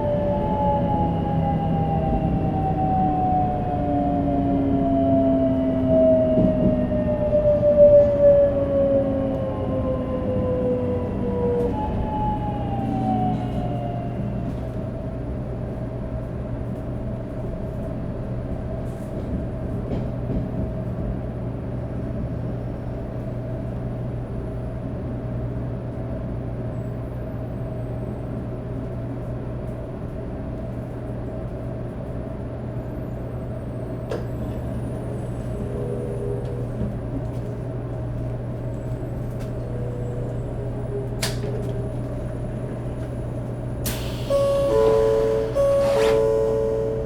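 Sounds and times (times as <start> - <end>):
train rumble on board: 0.0 - 47.0
traction motor whine: 43.9 - 47.0.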